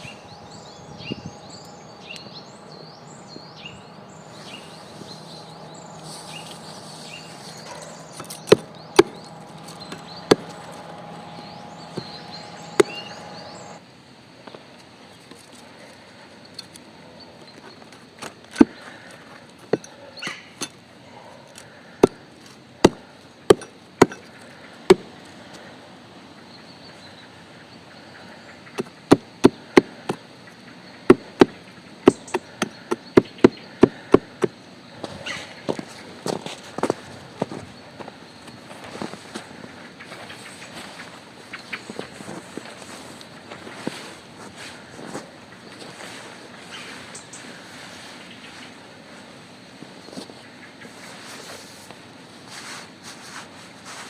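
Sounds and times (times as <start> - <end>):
small bird chirping: 0.0 - 13.8.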